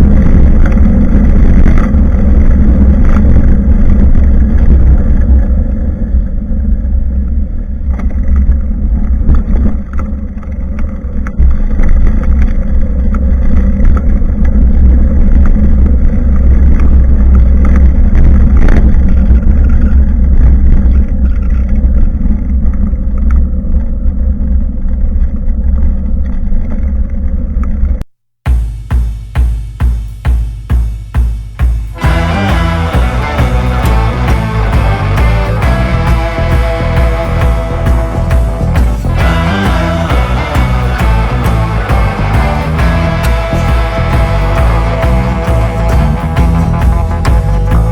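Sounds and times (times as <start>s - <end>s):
wind rumble on microphone: 0.0s - 28.0s
tyre and road noise: 0.0s - 47.9s.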